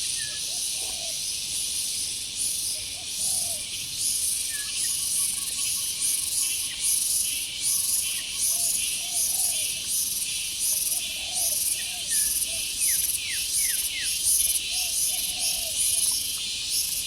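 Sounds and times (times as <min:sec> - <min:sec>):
insects buzzing chorus: 0:00.0 - 0:17.0
dove cooing: 0:00.5 - 0:01.2, 0:09.0 - 0:09.7, 0:11.0 - 0:12.1, 0:14.8 - 0:16.0.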